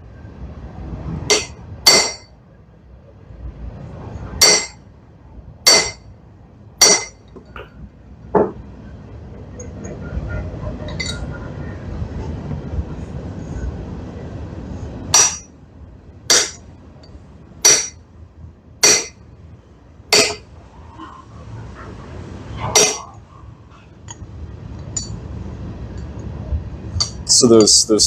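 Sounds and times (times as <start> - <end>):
steady low rumble: 0.0 - 28.0
hammer clanking on anvil: 1.3 - 2.3, 4.4 - 4.8, 5.7 - 6.0, 6.8 - 7.2, 15.2 - 15.5, 16.3 - 16.6, 17.6 - 18.0, 18.8 - 19.2, 20.1 - 20.4, 22.8 - 23.1.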